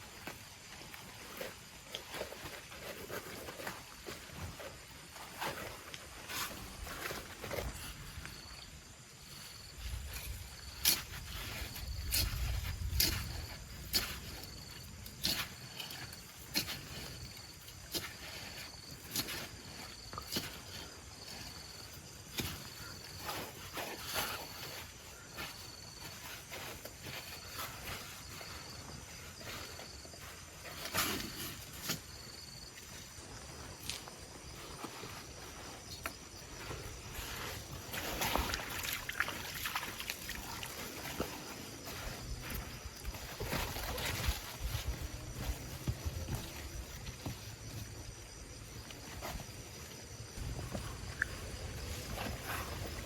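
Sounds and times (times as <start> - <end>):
high insect trill: 0.0 - 53.0
water sloshing and splashing: 36.6 - 47.4.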